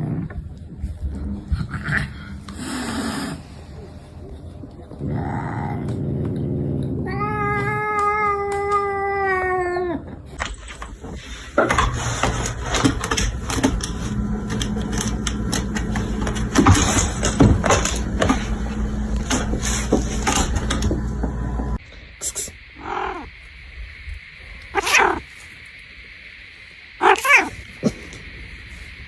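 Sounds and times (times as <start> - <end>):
steady low hum: 0.0 - 7.8, 10.2 - 29.0
cat meowing: 7.0 - 10.0, 24.8 - 25.2, 27.0 - 27.6
rustling and clicking: 10.2 - 21.8.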